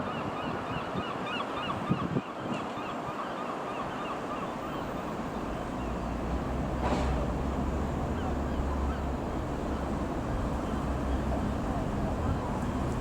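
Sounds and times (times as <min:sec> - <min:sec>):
birds chirping: 0:03.8 - 0:13.0
jet engines roaring: 0:03.9 - 0:13.0.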